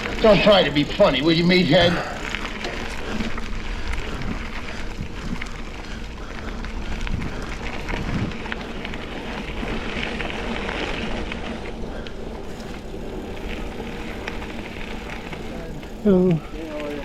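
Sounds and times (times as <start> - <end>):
bike clicks and rattles: 0.0 - 17.0
bike tyres crunching gravel: 0.0 - 17.0
wind on microphone: 3.6 - 8.8.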